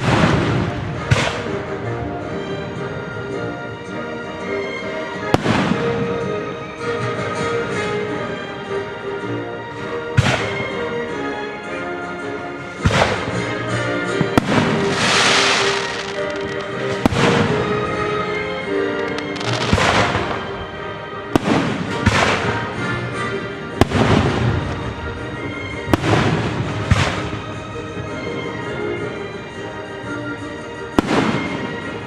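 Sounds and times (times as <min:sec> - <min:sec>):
orchestral music: 0:00.0 - 0:32.0
fireworks crackling: 0:14.1 - 0:22.8
fireworks bangs: 0:14.2 - 0:22.8.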